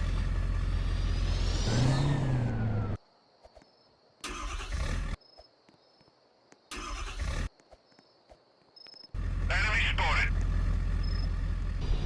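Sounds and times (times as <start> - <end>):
car engine revving: 0.0 - 3.0, 10.3 - 12.0.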